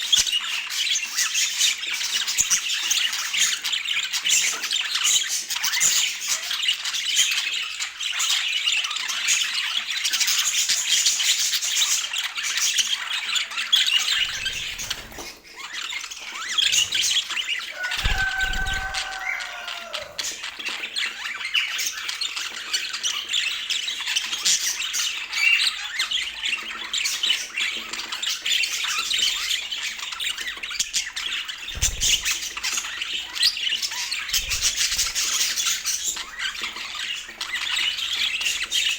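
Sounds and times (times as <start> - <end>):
budgerigars chattering: 13.2 - 38.9.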